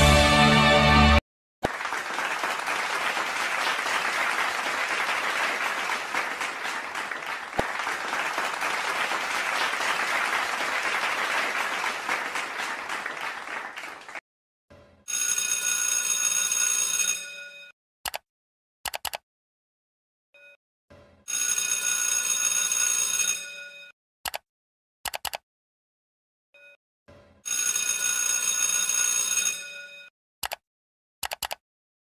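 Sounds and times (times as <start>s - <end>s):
crowd applause: 0.0s - 14.2s
old telephone bell ringing: 15.1s - 17.7s, 21.3s - 23.9s, 27.5s - 30.1s.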